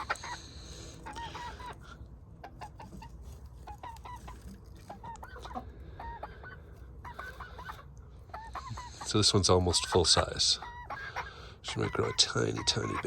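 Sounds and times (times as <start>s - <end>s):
hen clucking softly: 0.0s - 13.0s.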